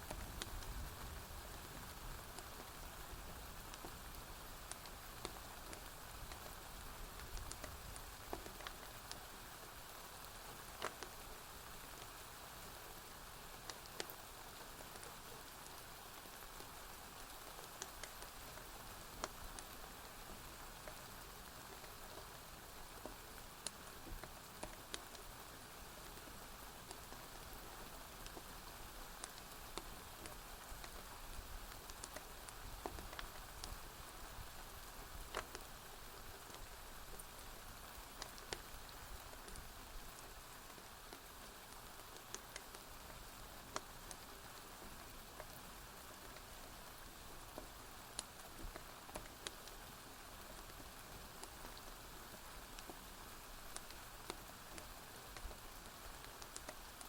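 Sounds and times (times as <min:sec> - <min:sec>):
gentle rain falling: 0:00.0 - 0:57.0
sharp clicks and pops: 0:07.2 - 0:09.2, 0:29.2 - 0:33.8, 0:35.3 - 0:37.4, 0:38.0 - 0:41.3, 0:52.7 - 0:57.0.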